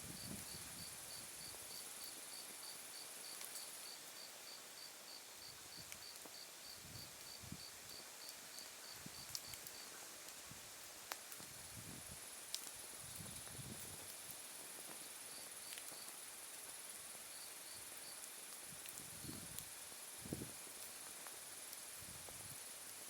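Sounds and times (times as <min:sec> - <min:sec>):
campfire wood crackling pops: 0:05.7 - 0:06.4, 0:07.2 - 0:16.8, 0:18.2 - 0:23.0
low rumble of flames: 0:10.5 - 0:15.6, 0:18.6 - 0:22.8.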